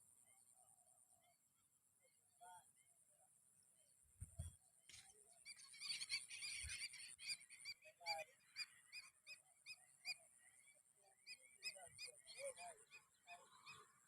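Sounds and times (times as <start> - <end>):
flock of birds chattering: 4.2 - 14.0.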